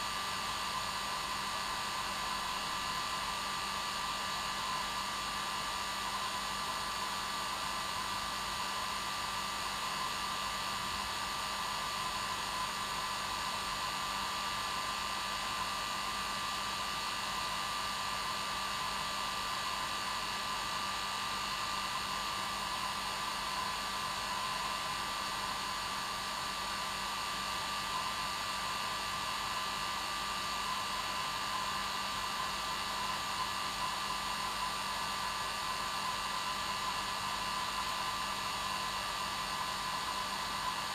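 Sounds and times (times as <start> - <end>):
hair dryer running: 19.4 - 40.9.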